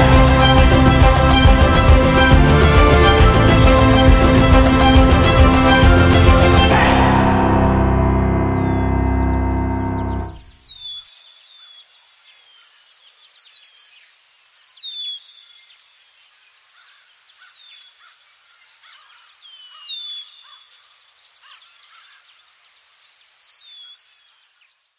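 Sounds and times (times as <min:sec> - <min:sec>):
very high chirps: 0:06.1 - 0:10.8.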